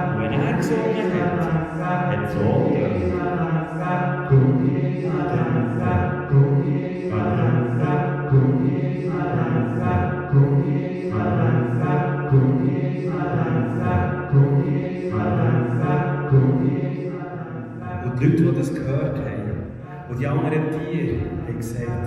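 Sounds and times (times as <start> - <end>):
deep low voice: 0.0 - 3.4, 17.8 - 22.0
voices chanting: 0.0 - 18.5.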